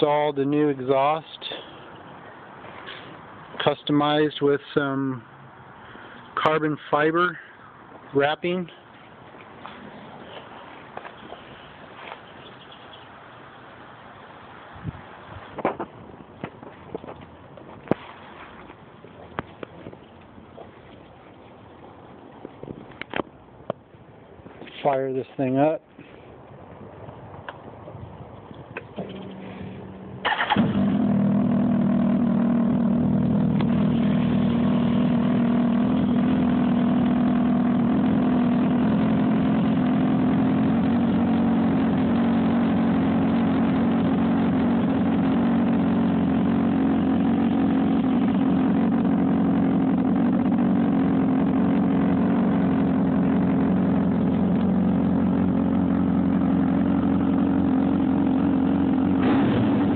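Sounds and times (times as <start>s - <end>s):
motorcycle engine starting and idling: 28.9s - 59.9s.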